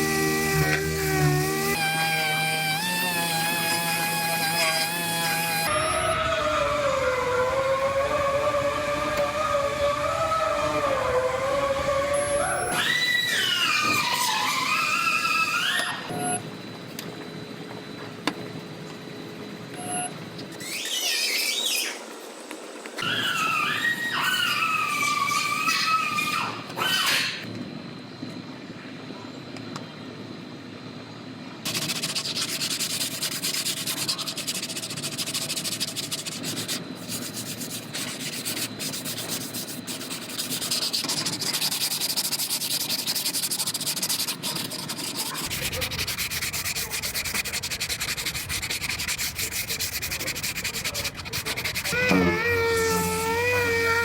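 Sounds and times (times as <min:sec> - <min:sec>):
bodywork tool scratching sheet metal: 0:00.0 - 0:05.7, 0:31.7 - 0:54.0
wavering pitched tone: 0:00.0 - 0:12.9, 0:51.7 - 0:54.0.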